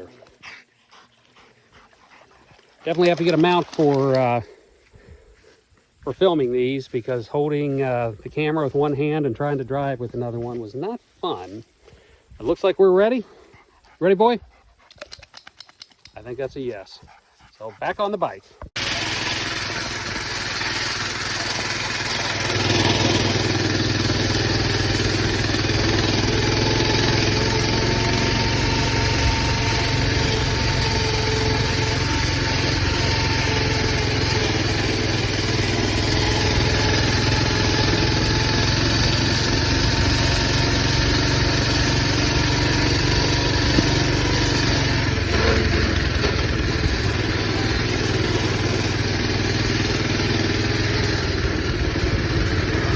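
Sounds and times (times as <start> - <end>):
mini bike engine running: 2.8 - 4.5, 18.8 - 52.9.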